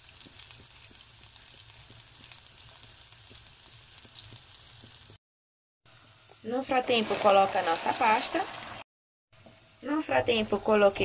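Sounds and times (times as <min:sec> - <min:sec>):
food sizzling in a frying pan: 0:00.0 - 0:05.2, 0:05.9 - 0:11.0
small crackles: 0:00.0 - 0:05.2.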